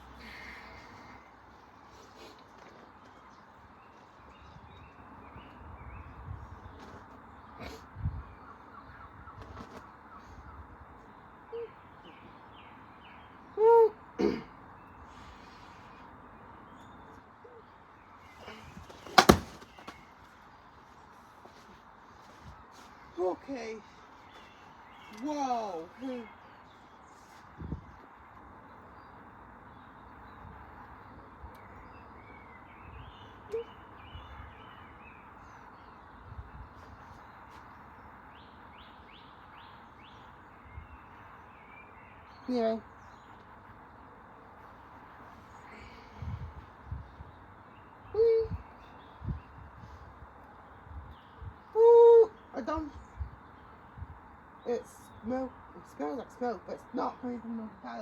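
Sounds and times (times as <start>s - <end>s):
small birds chirping: 0.0s - 58.0s
dull thump: 18.8s - 20.0s.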